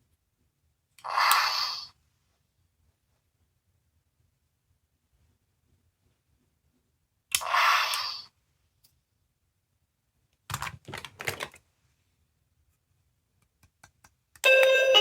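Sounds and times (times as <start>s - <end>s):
toy hissing noise: 1.0s - 2.0s, 7.4s - 8.3s.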